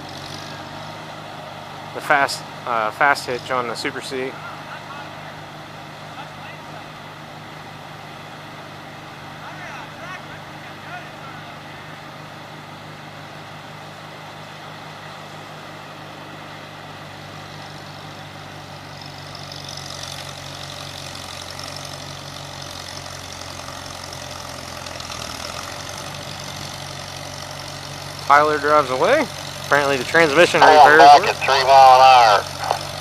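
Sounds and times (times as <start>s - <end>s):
tractor engine running: 10.4s - 33.0s.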